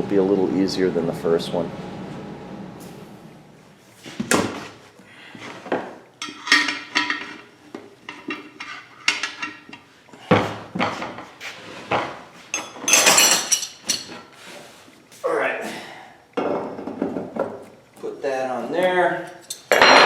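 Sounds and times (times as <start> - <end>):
metal clanks and knocks: 5.8 - 7.5, 8.1 - 11.2, 19.5 - 20.0.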